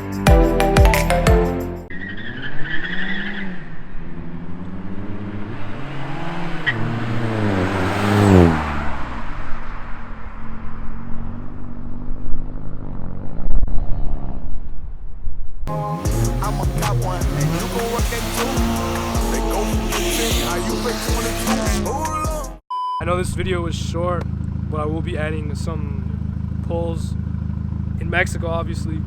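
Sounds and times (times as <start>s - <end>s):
car engine accelerating hard: 1.9s - 14.6s, 15.7s - 22.6s
rush of noise: 15.7s - 22.3s.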